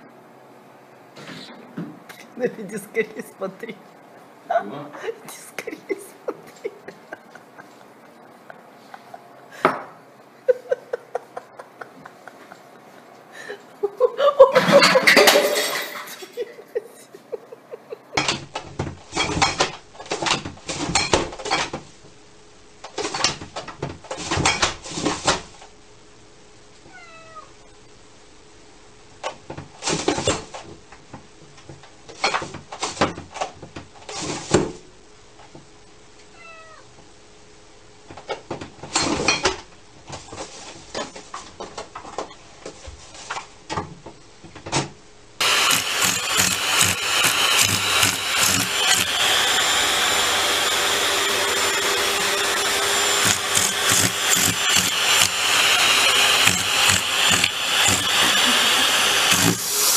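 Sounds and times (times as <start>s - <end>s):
cats meowing and yowling: 36.4s - 36.9s.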